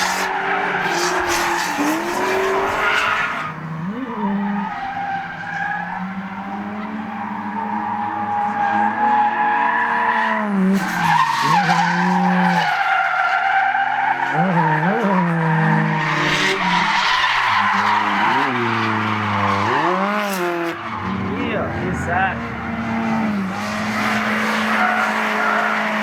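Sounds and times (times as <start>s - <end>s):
car engine revving hard: 17.4s - 26.0s.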